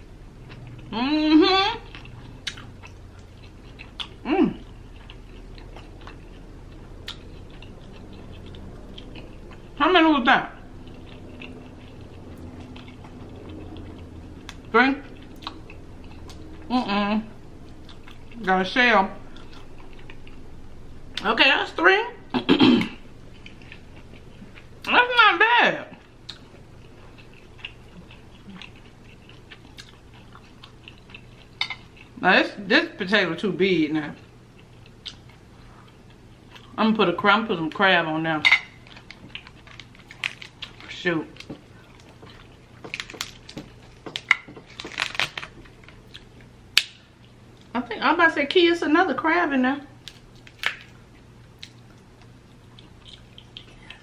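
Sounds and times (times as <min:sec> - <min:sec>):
person chewing food: 0:00.0 - 0:01.0, 0:01.7 - 0:09.8, 0:10.5 - 0:18.5, 0:19.2 - 0:21.2, 0:22.3 - 0:24.9, 0:25.9 - 0:32.2, 0:34.2 - 0:36.8, 0:38.6 - 0:47.7, 0:50.0 - 0:54.0
person humming: 0:00.9 - 0:01.9.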